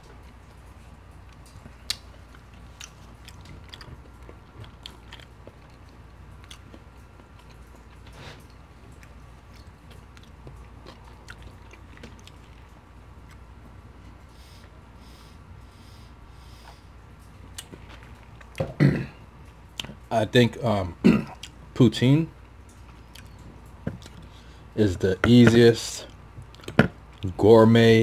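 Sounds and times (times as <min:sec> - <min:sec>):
close-miked chewing: 0:00.0 - 0:18.7, 0:21.3 - 0:21.8, 0:22.5 - 0:27.4
low steady hum: 0:00.0 - 0:28.0
wet mouth clicks and smacks: 0:01.3 - 0:07.7.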